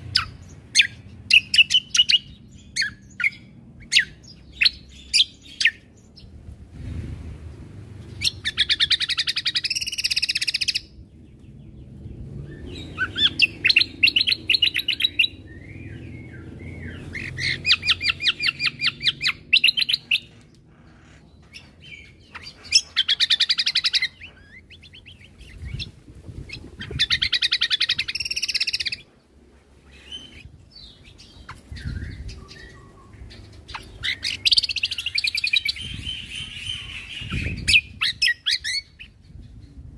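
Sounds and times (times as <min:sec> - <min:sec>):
songbird singing rapid bursts: 0:00.0 - 0:06.5, 0:07.6 - 0:29.1, 0:29.8 - 0:39.9
faint low rumble: 0:10.6 - 0:23.0.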